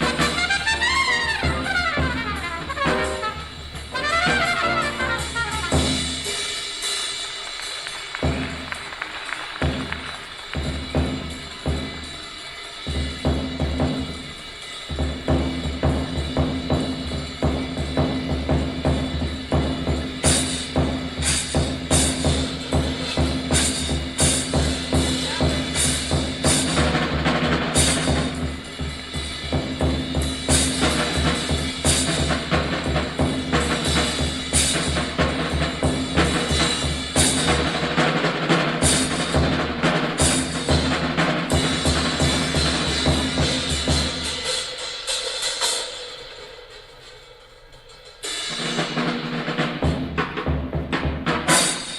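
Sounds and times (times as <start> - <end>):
sharp drum strikes: 0.0 - 6.4
live jazz: 0.0 - 6.6
cymbal crashes: 0.0 - 8.6, 10.4 - 50.1.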